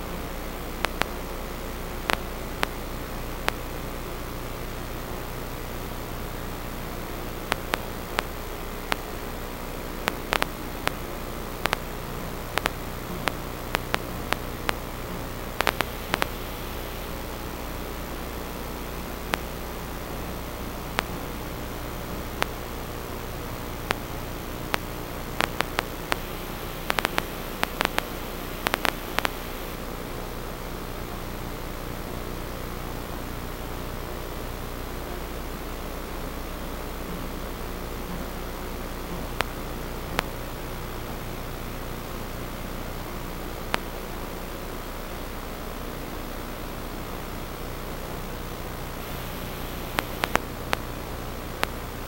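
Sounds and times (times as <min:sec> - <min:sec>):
electronic static hiss: 0:00.0 - 0:52.0
faint low hum: 0:00.0 - 0:52.0
sharp clicks and crackles: 0:00.8 - 0:01.2, 0:02.1 - 0:02.8, 0:03.4 - 0:03.7, 0:07.4 - 0:09.2, 0:10.0 - 0:17.4, 0:19.2 - 0:19.6, 0:20.2 - 0:21.4, 0:22.1 - 0:23.1, 0:23.7 - 0:29.8, 0:39.4 - 0:40.4, 0:43.7 - 0:43.9, 0:48.9 - 0:51.9
short sharp clicks: 0:15.6 - 0:16.7, 0:24.7 - 0:29.8.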